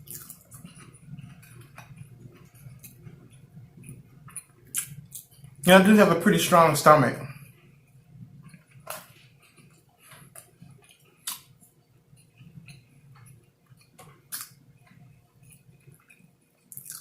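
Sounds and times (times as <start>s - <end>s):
person chewing food: 0.0s - 5.6s, 7.4s - 17.0s
mouth clicks and smacks: 3.8s - 5.4s, 8.5s - 11.6s, 12.4s - 14.6s, 15.4s - 17.0s.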